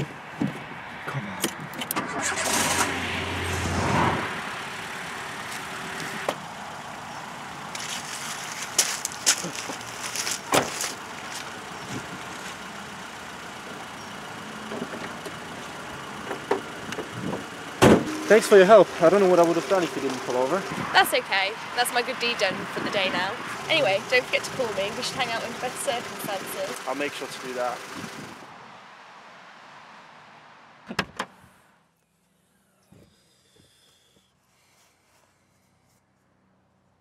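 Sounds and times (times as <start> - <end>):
car engine starting: 1.0 - 28.7
car door and bonnet clunks: 10.4 - 11.0, 16.2 - 18.5.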